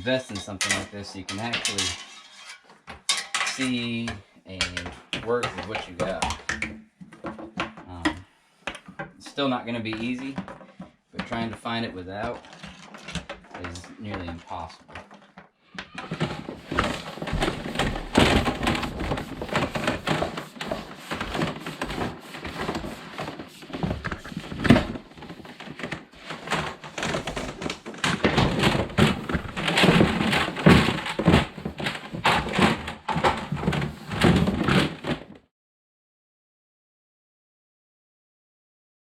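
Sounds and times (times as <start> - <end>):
scraping: 0.0 - 8.2, 9.2 - 35.2
rustling: 9.8 - 35.2.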